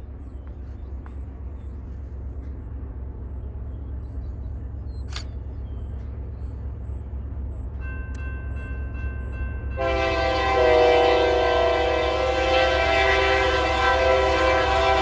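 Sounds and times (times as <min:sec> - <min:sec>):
locomotive air horn chord: 0:09.7 - 0:15.0.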